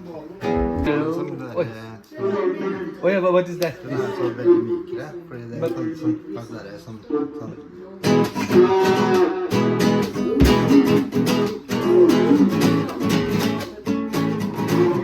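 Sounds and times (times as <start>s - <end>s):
strummed acoustic guitar: 0.4s - 1.2s, 8.0s - 15.0s.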